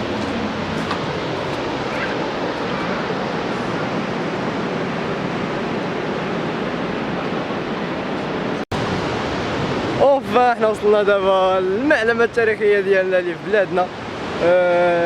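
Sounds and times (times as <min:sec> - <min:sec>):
ocean surf breaking: 0:00.0 - 0:07.1.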